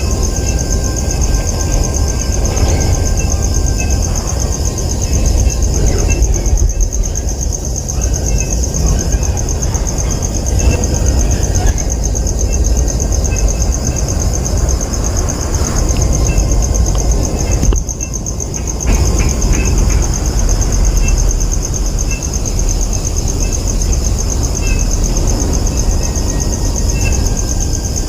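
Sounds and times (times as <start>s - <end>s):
insect chorus: 0.0s - 28.0s
wind rumble on microphone: 0.0s - 28.0s.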